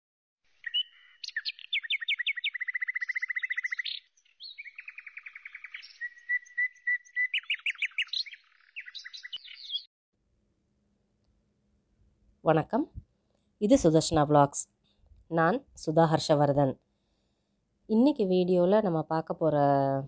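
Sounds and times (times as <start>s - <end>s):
songbird singing: 0.5s - 9.9s.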